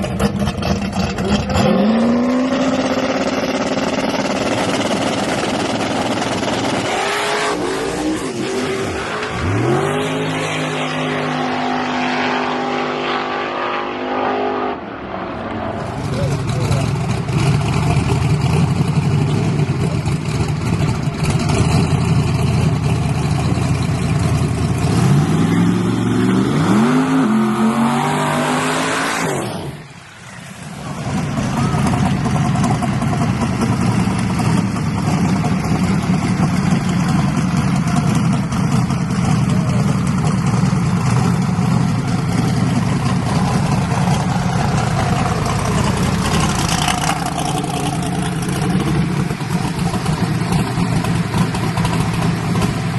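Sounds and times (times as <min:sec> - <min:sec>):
drag racing engines: 0:00.0 - 0:52.9.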